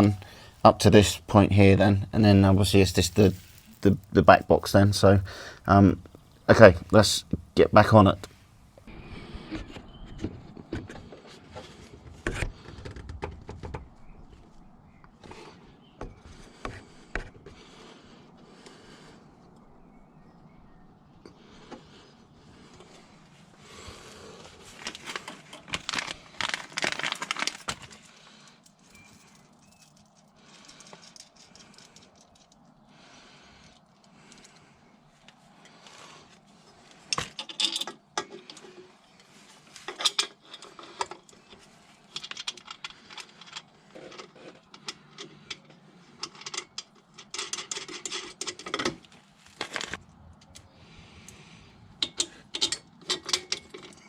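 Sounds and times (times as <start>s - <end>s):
metal parts and tools clattering: 2.2s - 5.3s, 24.7s - 32.6s, 37.1s - 38.8s, 39.7s - 50.0s, 52.0s - 54.0s.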